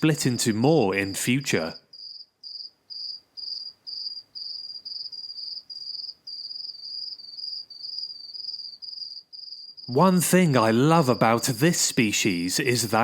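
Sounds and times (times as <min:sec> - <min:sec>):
cricket chirping: 0:01.7 - 0:12.0.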